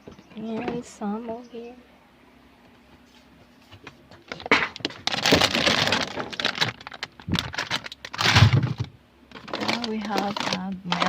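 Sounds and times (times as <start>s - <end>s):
grocery packaging crinkling: 4.2s - 11.0s.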